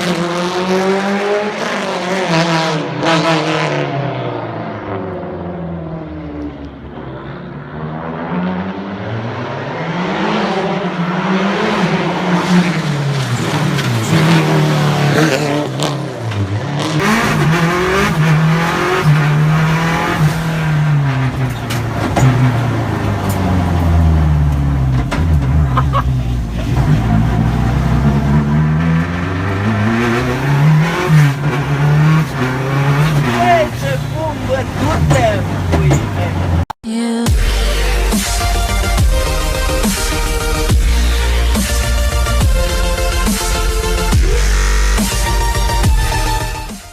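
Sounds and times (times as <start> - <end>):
car engine revving: 0.0 - 46.9
tyre noise: 12.5 - 36.6.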